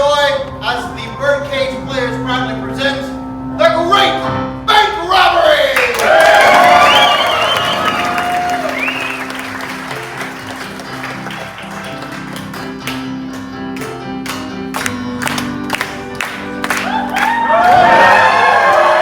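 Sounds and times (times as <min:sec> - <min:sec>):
piano music: 0:00.0 - 0:19.0
audience applause: 0:05.8 - 0:13.2, 0:15.2 - 0:19.0.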